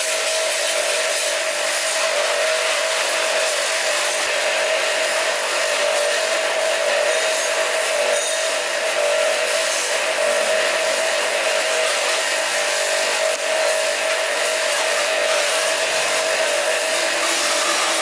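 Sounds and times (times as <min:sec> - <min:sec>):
machine motor whining: 0:15.4 - 0:18.0.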